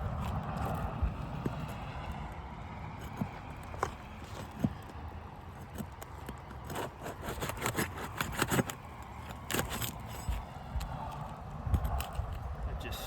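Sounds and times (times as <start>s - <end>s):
shingles scraping and crackling: 0.0s - 12.6s
low wind rumble: 0.0s - 13.0s.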